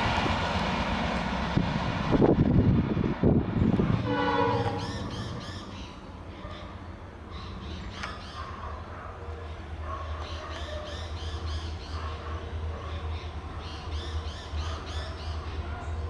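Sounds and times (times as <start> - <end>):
train coaches rumbling: 0.0 - 16.0
train horn note: 3.9 - 5.2
birds calling: 4.5 - 16.0.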